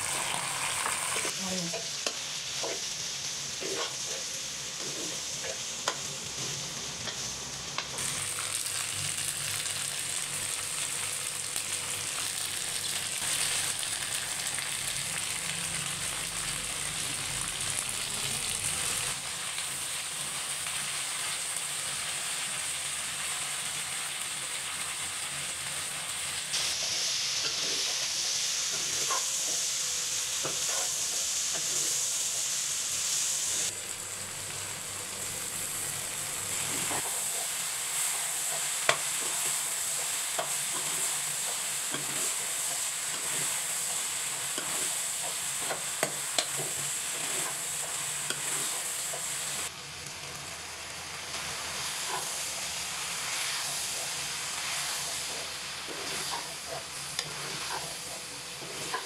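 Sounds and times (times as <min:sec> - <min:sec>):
okra sizzling in hot oil: 0:00.0 - 0:59.0
spatula scraping pan: 0:03.6 - 0:05.6, 0:51.9 - 0:59.0.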